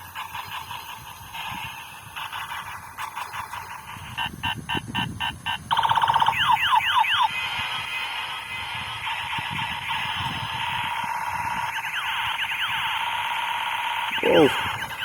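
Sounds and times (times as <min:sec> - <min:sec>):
fast electronic rattling burst: 0:00.1 - 0:15.0
swooping siren-like tones: 0:05.7 - 0:15.0.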